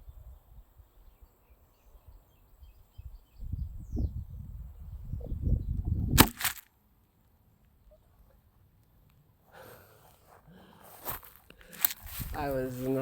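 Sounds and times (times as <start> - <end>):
sharp crack: 6.2 - 6.7, 11.6 - 12.2.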